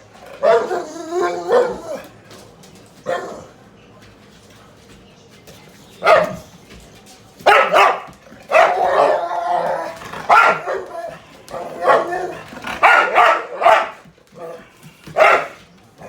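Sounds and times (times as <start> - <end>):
dogs barking: 0.2 - 2.1, 3.0 - 3.6, 6.0 - 6.5, 7.4 - 15.7.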